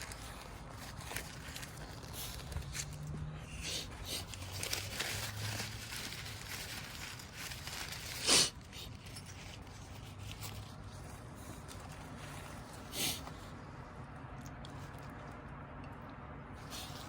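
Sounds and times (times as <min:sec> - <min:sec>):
packaging crinkling: 0:00.0 - 0:03.1, 0:03.9 - 0:10.8.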